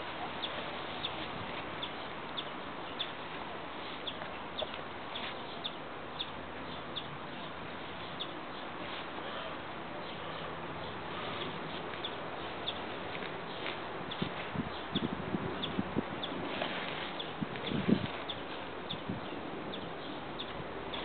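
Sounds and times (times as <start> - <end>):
bird chirping: 1.8 - 3.2, 4.0 - 8.7, 10.0 - 16.4, 17.2 - 21.0.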